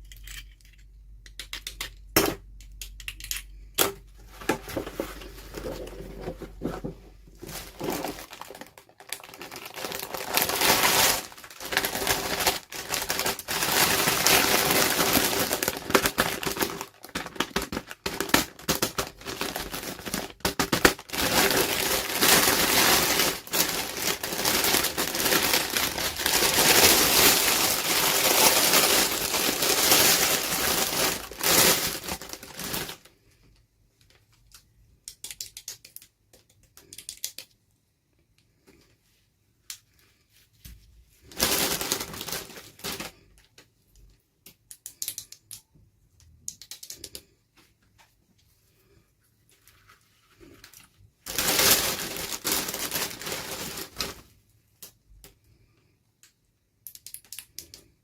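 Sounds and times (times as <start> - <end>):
packaging crinkling: 4.4 - 33.1, 41.2 - 43.3, 49.6 - 54.3.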